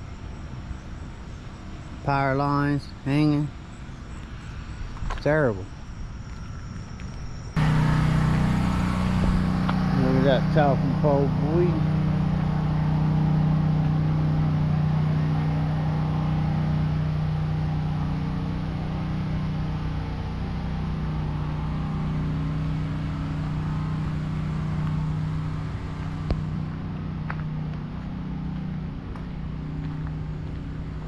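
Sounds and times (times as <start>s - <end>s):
steady engine hum: 7.6s - 31.0s.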